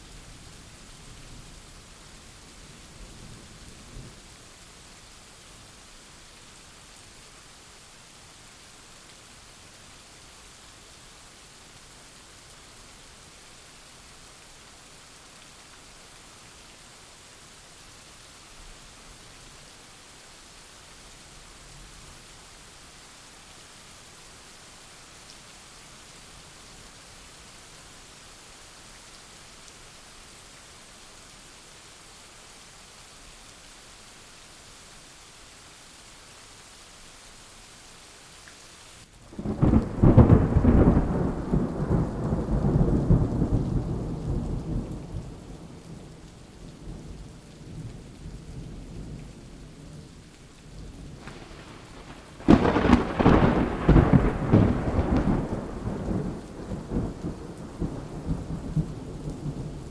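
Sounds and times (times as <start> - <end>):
rain hiss: 0.0 - 59.9
thunder rumbling: 39.4 - 45.8, 51.1 - 59.8.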